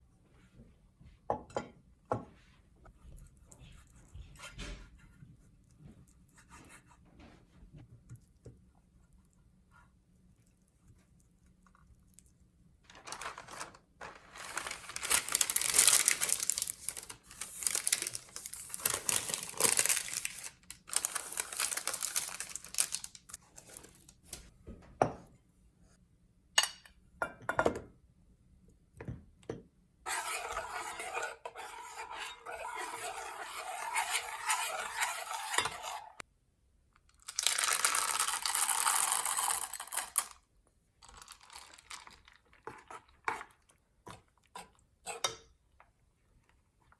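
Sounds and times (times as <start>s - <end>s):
utensils scraping and clinking: 30.1s - 36.2s.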